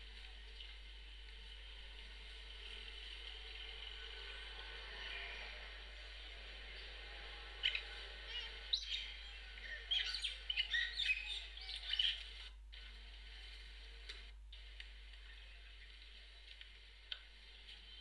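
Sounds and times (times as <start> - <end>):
birds chirping: 0.1 - 12.5.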